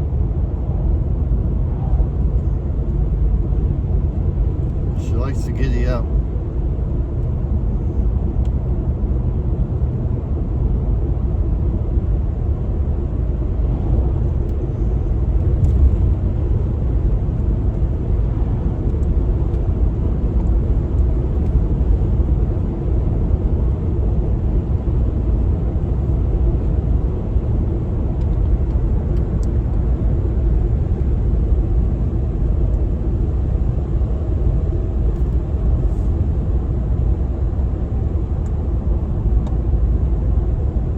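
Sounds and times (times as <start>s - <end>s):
truck engine and road rumble: 0.0s - 40.9s.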